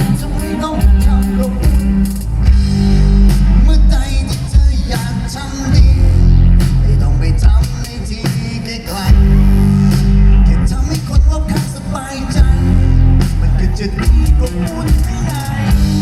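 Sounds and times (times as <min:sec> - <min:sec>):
live rock band playing: 0:00.0 - 0:16.0
person singing: 0:00.0 - 0:16.0.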